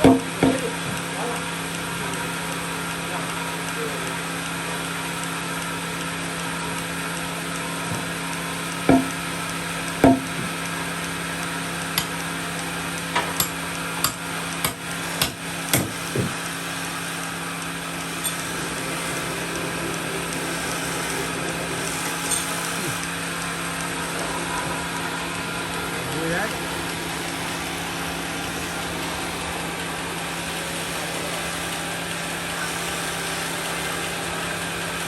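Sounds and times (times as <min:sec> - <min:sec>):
machine humming: 0:00.0 - 0:35.0
wood knocks and thuds: 0:08.9 - 0:09.2, 0:10.0 - 0:10.5, 0:15.2 - 0:16.4.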